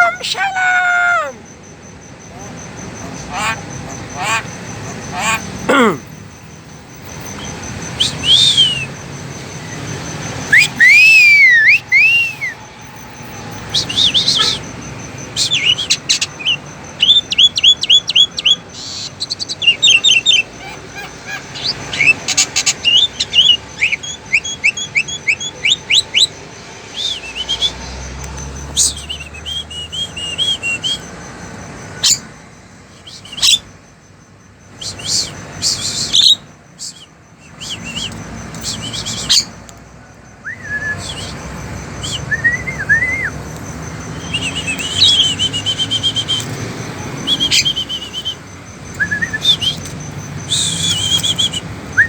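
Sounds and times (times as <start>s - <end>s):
small bird chirping and singing: 6.9s - 27.9s, 34.8s - 39.6s, 40.5s - 52.0s.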